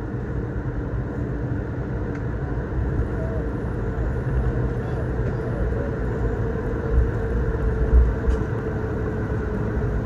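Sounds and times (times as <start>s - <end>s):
aircraft cabin rumble: 0.0s - 10.0s.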